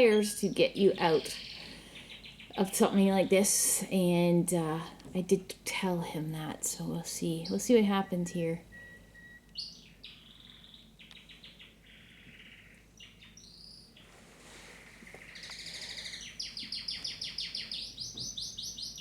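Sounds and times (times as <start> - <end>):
canary singing and trilling: 0.0 - 3.3, 6.9 - 14.0, 15.1 - 19.0.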